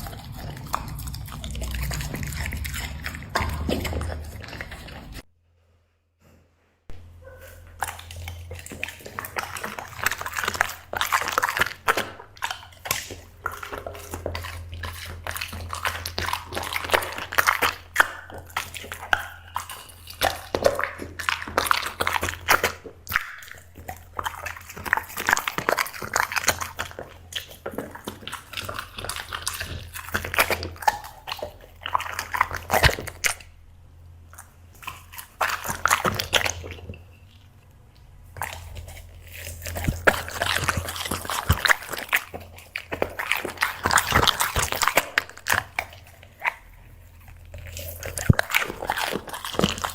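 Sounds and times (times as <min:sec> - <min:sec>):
mouth smacking: 0:00.0 - 0:05.2, 0:38.3 - 0:49.9
dog chewing and crunching: 0:00.0 - 0:05.3, 0:06.9 - 0:49.9
steady low hum: 0:00.0 - 0:05.3, 0:26.7 - 0:49.9.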